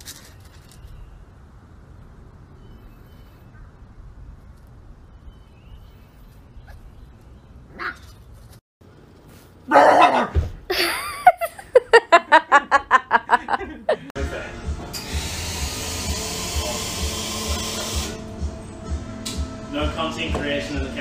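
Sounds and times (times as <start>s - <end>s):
dog yapping: 7.7s - 8.2s, 9.7s - 10.4s
dog barking rapidly: 9.7s - 10.4s.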